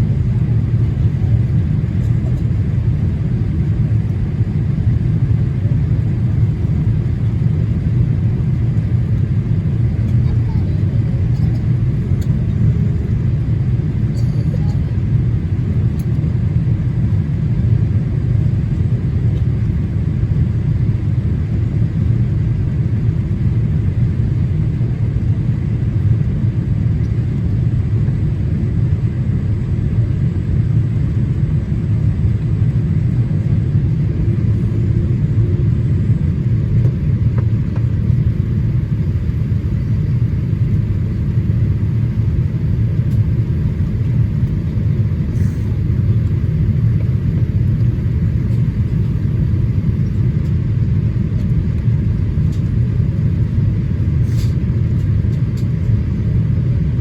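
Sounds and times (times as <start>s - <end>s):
aircraft cabin engine rumble: 0.0s - 57.0s.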